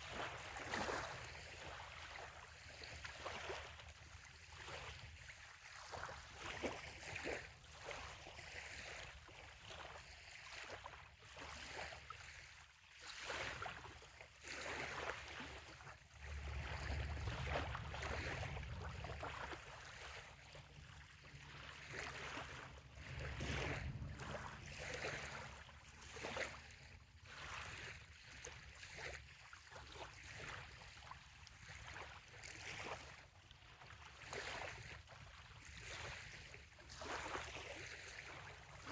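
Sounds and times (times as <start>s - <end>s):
waves lapping on sandy shore: 0.0s - 38.9s
low rumble: 16.3s - 19.9s, 22.8s - 25.6s.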